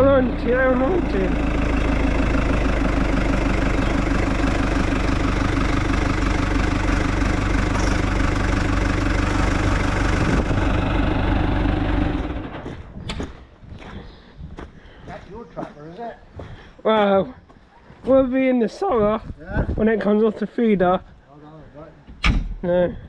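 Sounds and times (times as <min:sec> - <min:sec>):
tractor diesel engine idling: 0:00.0 - 0:12.9.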